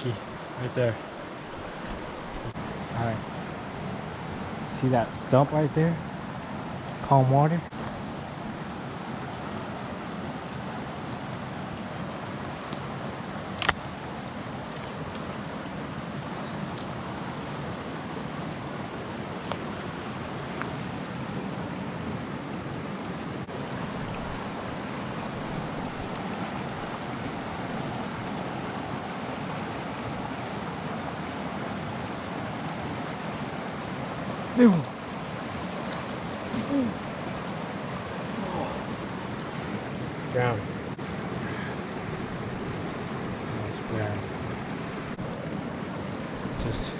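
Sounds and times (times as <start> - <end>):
stream water rushing: 0.0 - 46.9.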